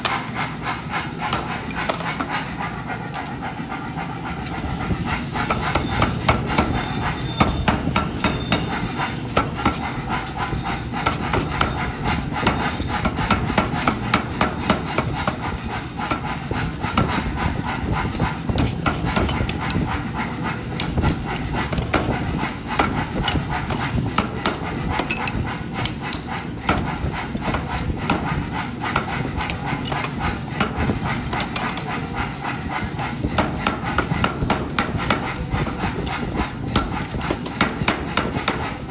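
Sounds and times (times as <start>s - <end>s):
hammer striking hot steel: 0.0s - 2.7s, 4.4s - 38.9s
metal rubbing and scraping: 0.0s - 38.9s.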